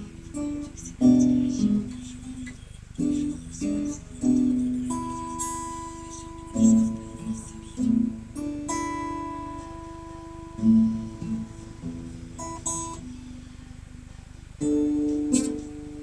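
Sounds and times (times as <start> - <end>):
guitar notes and chords: 0.0 - 16.0.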